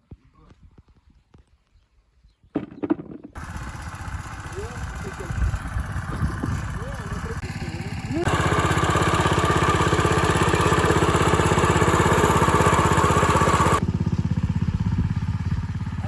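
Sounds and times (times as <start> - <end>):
engine running with pulsing beat: 3.4 - 16.0.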